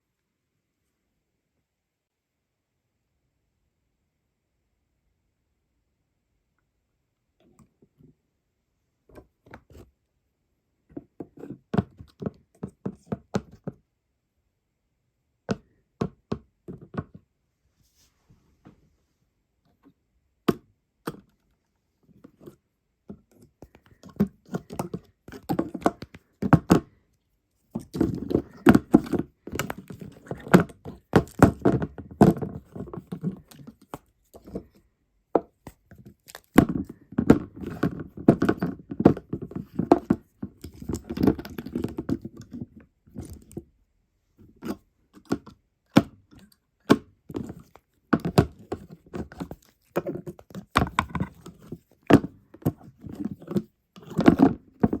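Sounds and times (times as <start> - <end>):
hard objects knocking and clattering: 27.8 - 34.8, 35.4 - 43.6, 46.8 - 55.0.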